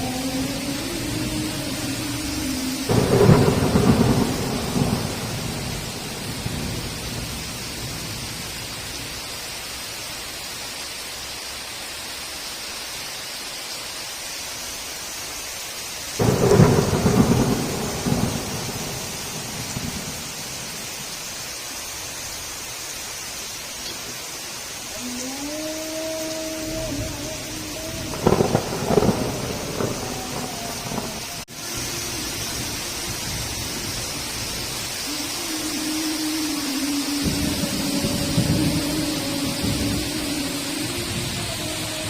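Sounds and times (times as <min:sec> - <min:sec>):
thunder claps rumbling: 0:00.0 - 0:08.9, 0:16.2 - 0:21.2, 0:26.6 - 0:42.0
heavy rain hissing: 0:00.0 - 0:42.0.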